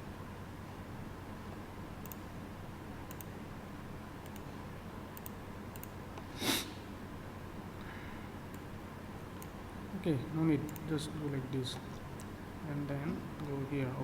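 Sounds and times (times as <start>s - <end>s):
low room hum: 0.0s - 14.0s
faint computer mouse clicks: 2.0s - 2.2s, 3.1s - 3.3s, 4.2s - 4.5s, 5.2s - 6.3s.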